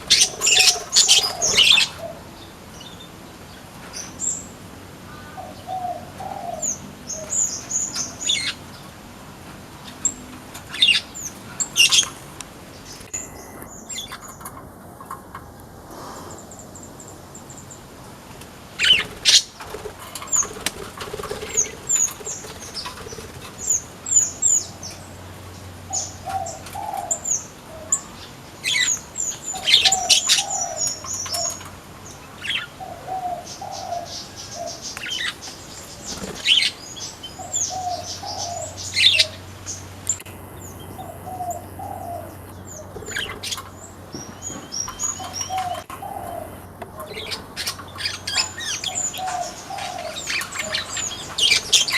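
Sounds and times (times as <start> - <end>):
birds chirping: 0.0 - 18.1, 18.7 - 51.9
low cooing: 40.8 - 43.6, 45.1 - 47.4.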